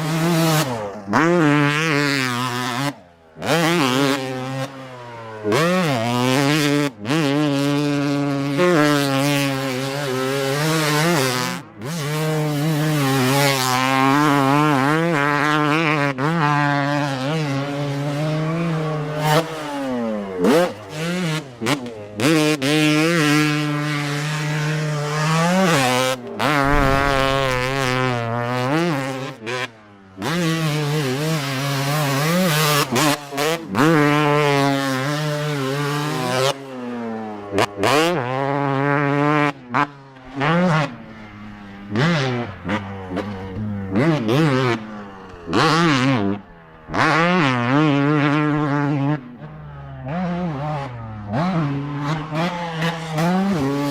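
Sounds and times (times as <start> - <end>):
dirt bike engine revving: 26.6 - 28.6.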